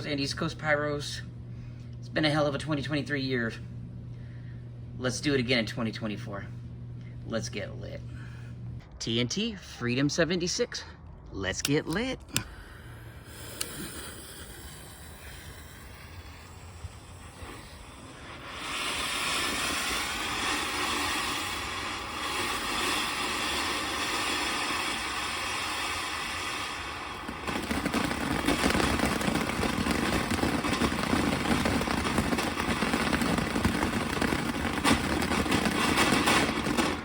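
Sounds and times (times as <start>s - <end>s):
firework fountain hissing spray: 12.4s - 37.0s.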